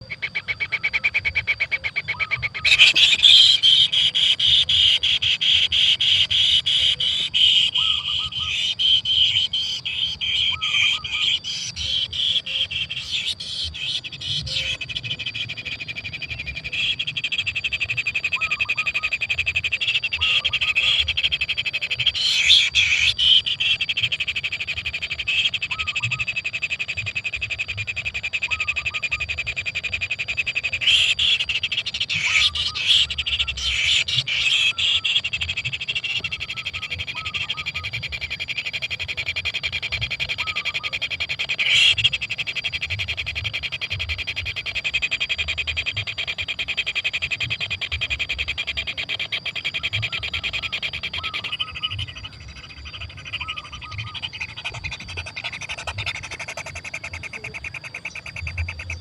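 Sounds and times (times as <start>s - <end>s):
chicks begging calls: 0.2s - 26.2s, 29.9s - 59.0s.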